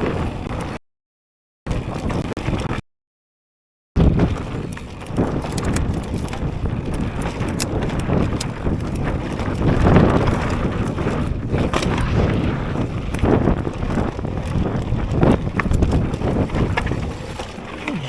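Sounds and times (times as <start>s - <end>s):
bike clicks and rattles: 1.7s - 2.7s, 4.0s - 11.9s, 13.0s - 18.0s
bike rumble on rough trail: 1.7s - 2.8s, 4.0s - 18.0s
wind buffeting microphone: 4.0s - 18.0s.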